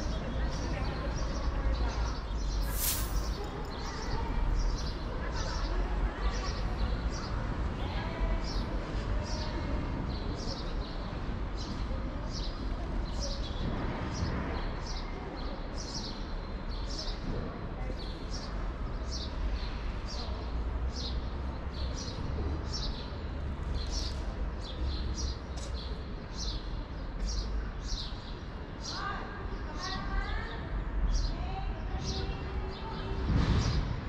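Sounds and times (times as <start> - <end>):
low city rumble: 0.0 - 34.0
small bird chirping: 2.4 - 4.0.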